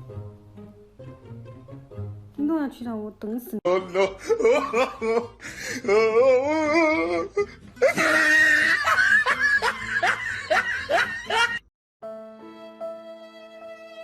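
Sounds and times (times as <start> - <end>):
person laughing: 3.7 - 11.6
soft violin music: 12.0 - 14.0.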